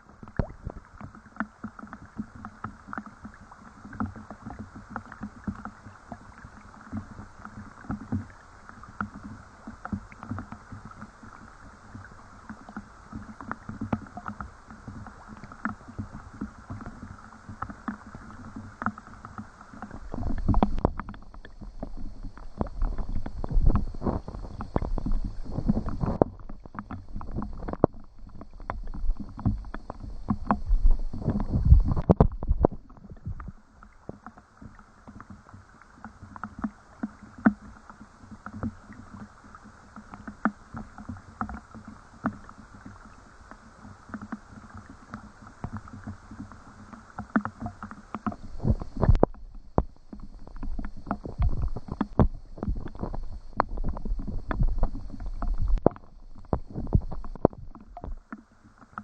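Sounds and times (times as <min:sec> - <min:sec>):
water lapping and sloshing: 0:00.0 - 0:59.0
knocks and splashes: 0:20.0 - 0:33.5.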